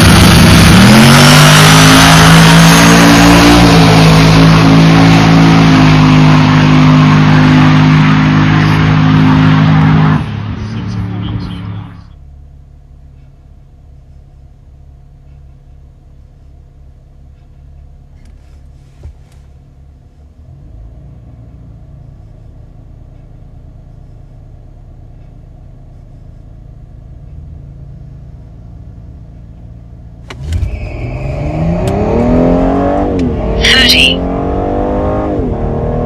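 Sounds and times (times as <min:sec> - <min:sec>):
car engine idling then revving: 0:00.0 - 0:04.8.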